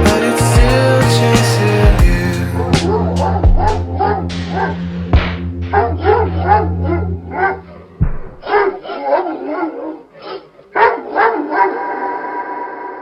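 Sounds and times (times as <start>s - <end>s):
low bass drone: 0.0s - 8.4s
thump: 8.0s - 8.4s
dog barking: 8.4s - 13.0s.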